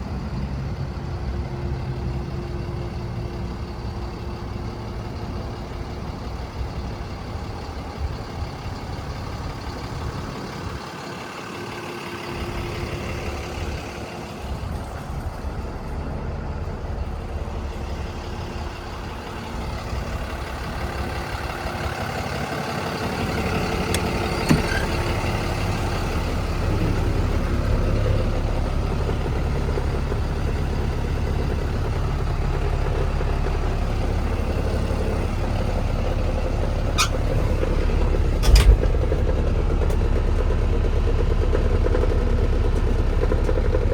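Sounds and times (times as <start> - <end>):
truck engine idling: 0.0 - 43.9
sharp click: 38.4 - 39.2.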